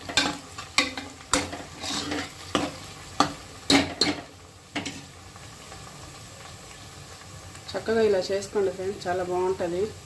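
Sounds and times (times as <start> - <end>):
spoon scraping a pot: 0.0 - 4.2
onions sizzling in oil: 0.0 - 10.0.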